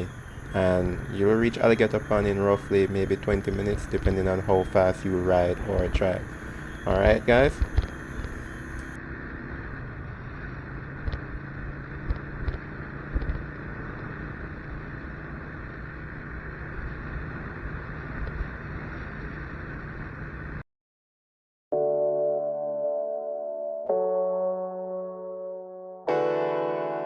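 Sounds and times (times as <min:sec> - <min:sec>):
motorcycle engine drone: 0:00.0 - 0:20.6
road and wind noise: 0:00.0 - 0:20.6.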